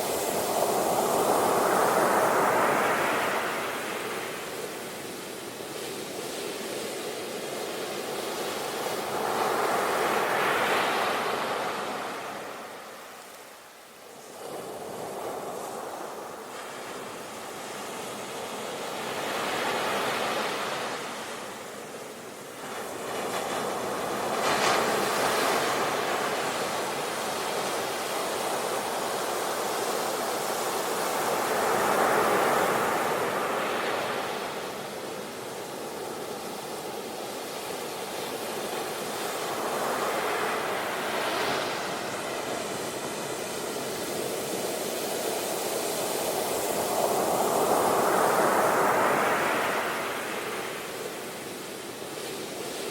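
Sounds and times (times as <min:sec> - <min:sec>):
sea waves breaking on shore: 0:14.3 - 0:52.9.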